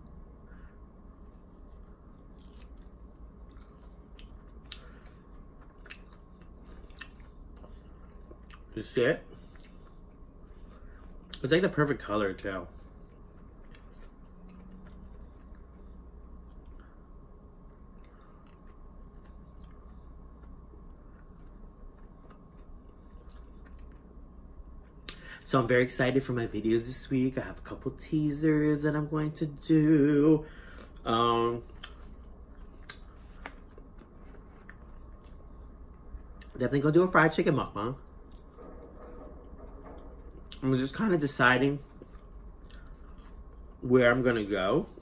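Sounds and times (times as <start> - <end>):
steady low hum: 0.0 - 45.0
person chewing food: 0.1 - 11.4, 12.8 - 17.0, 17.6 - 25.2, 30.6 - 36.6, 38.0 - 40.6, 41.8 - 43.8
person chewing with wet mouth clicks: 2.3 - 8.7, 31.7 - 35.4.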